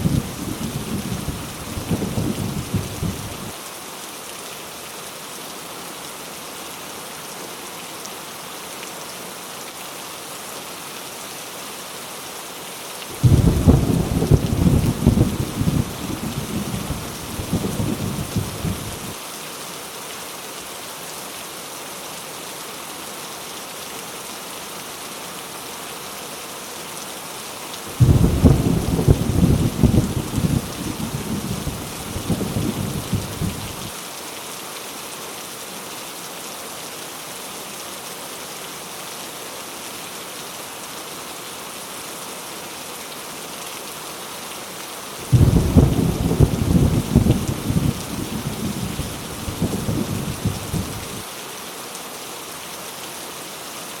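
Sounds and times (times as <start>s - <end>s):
heavy rain falling: 0.0s - 54.0s
thunder rolling: 13.2s - 16.0s, 28.0s - 31.6s, 45.3s - 49.0s.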